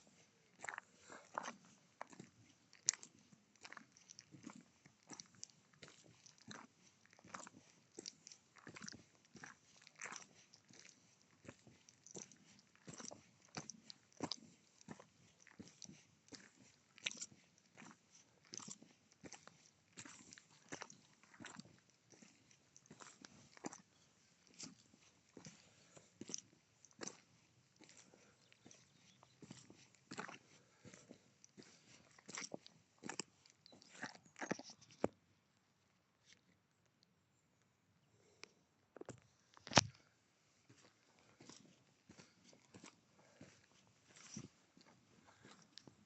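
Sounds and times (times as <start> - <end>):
footsteps crunching on gravel: 0.6 - 4.5, 27.8 - 34.8.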